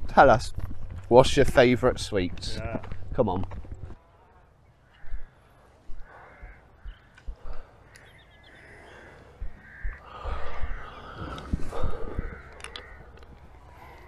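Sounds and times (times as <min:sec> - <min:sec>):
bird cawing: 0:04.0 - 0:14.0.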